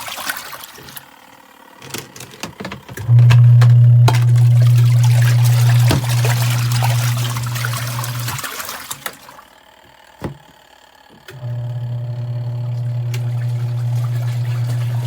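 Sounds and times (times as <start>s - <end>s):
washing machine motor hum: 0.0s - 15.0s
water trickling and splashing: 4.1s - 9.4s, 13.1s - 15.0s.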